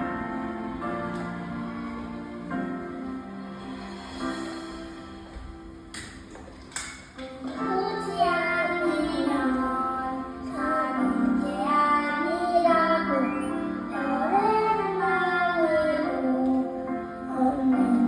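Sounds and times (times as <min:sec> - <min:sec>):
child singing: 0:07.4 - 0:18.0.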